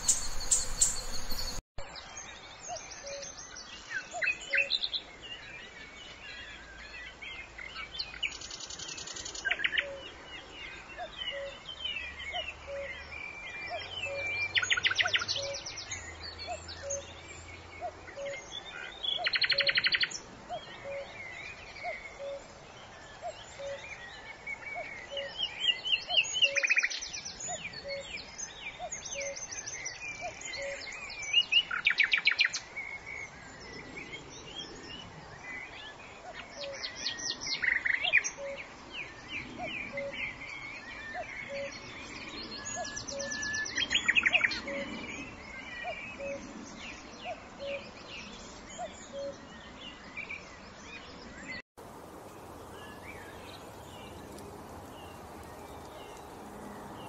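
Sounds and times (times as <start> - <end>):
birds trilling: 0.0 - 1.6, 51.9 - 57.0.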